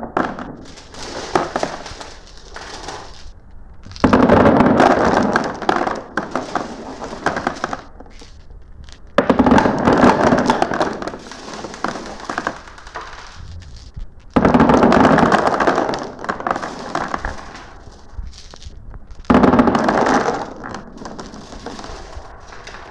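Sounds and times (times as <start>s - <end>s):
glass marbles clattering down a run: 0.7s - 3.3s.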